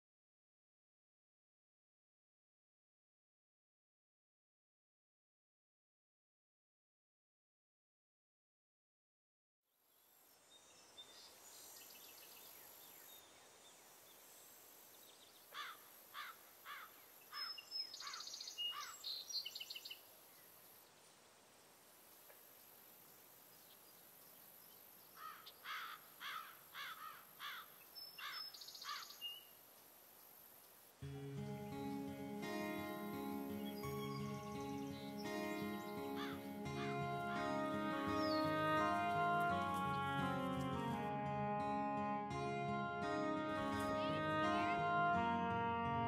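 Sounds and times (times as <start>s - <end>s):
steady high hiss: 10.0s - 41.1s
bird chirping: 10.3s - 21.0s, 22.2s - 41.0s
high whistled bird notes: 31.6s - 45.9s.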